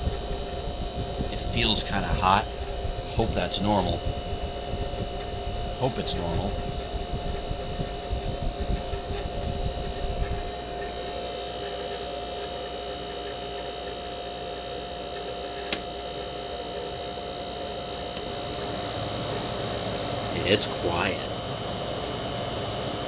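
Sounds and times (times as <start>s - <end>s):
air conditioner hum and whine: 0.0s - 23.0s
sharp click: 15.6s - 15.9s.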